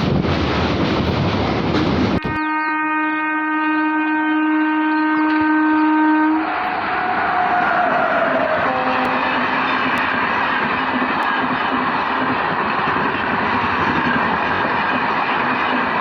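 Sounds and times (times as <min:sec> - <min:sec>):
rushing train noise: 0:00.0 - 0:16.0
train horn long blast: 0:02.2 - 0:09.6.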